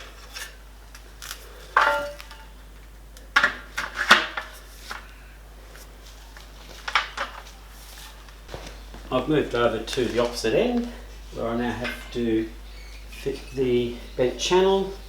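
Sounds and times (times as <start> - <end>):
metal bars clanking together: 1.8 - 2.6.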